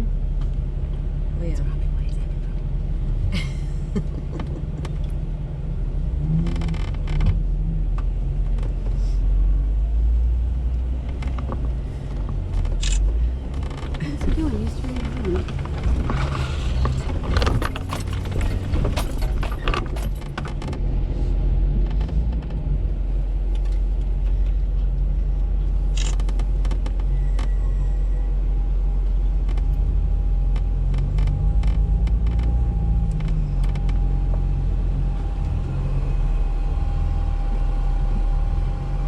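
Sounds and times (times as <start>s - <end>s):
engine running low rumble: 0.0s - 39.0s
clicks and rattles: 11.1s - 20.8s.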